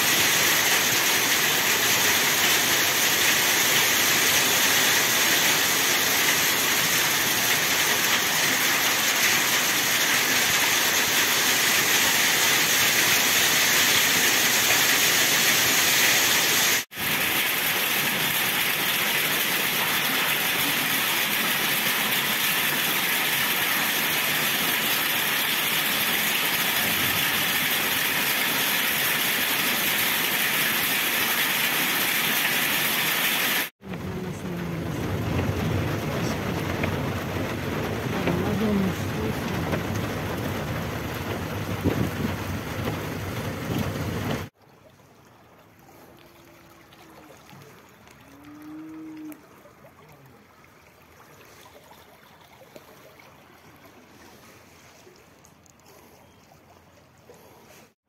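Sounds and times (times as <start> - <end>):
heavy rain pouring: 0.0 - 44.5.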